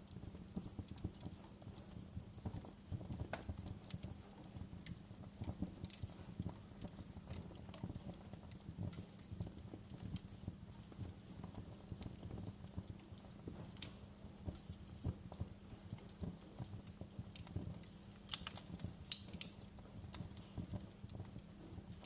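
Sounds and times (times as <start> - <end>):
low rumble of burning logs: 0.0 - 22.0
wood fire crackling: 0.0 - 22.0
sharp pops of fire: 0.1 - 22.0.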